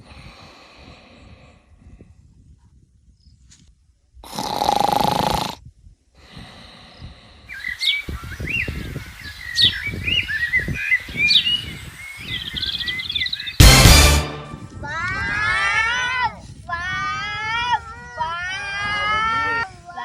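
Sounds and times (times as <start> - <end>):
birds chirping: 6.9 - 14.5.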